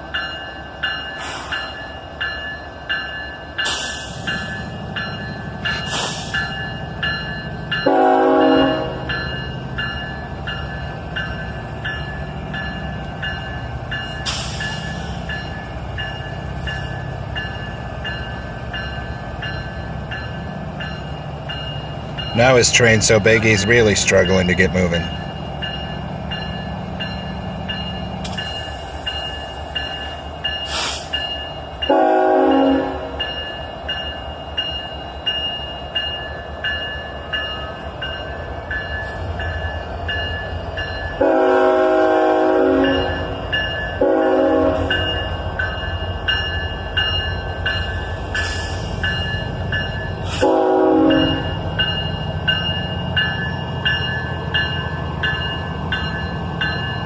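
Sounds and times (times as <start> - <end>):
crossing bell ringing: 0.0 - 57.0
locomotive engines rumbling: 0.0 - 57.0
train horn blasts: 7.8 - 9.1, 31.9 - 33.2, 41.2 - 43.4, 44.0 - 45.2, 50.4 - 51.5.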